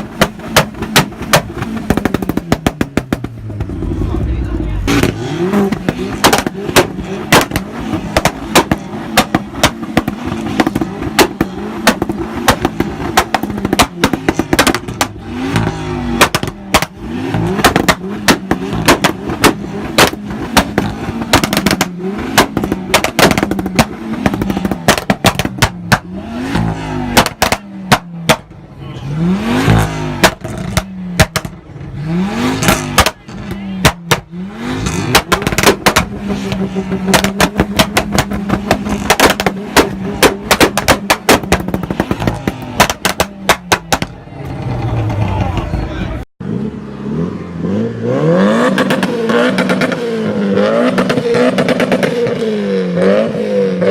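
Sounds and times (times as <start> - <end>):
exhaust pops and crackles: 0.0 - 28.6, 29.6 - 32.0, 32.6 - 46.2, 48.8 - 52.4
car engine revving: 0.0 - 53.9.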